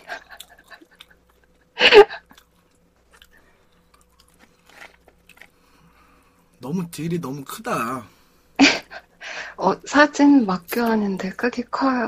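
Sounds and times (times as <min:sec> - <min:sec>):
close chewing: 0:00.0 - 0:06.5.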